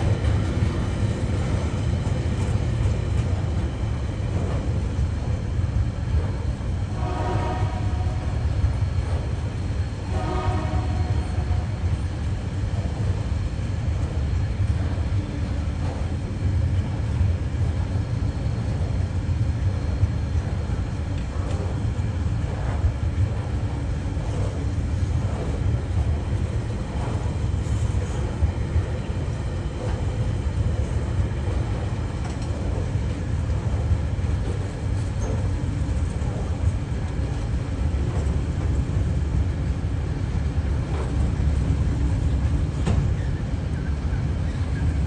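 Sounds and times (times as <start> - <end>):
freight train rumbling past: 0.0 - 45.0.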